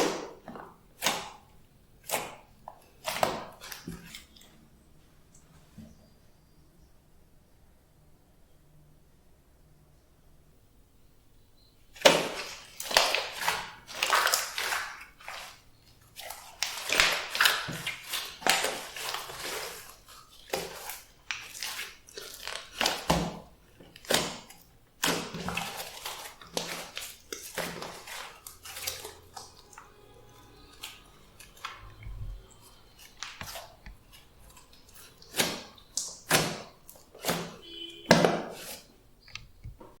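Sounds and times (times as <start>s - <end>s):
hands squishing slime: 0.0s - 4.5s, 12.0s - 38.9s.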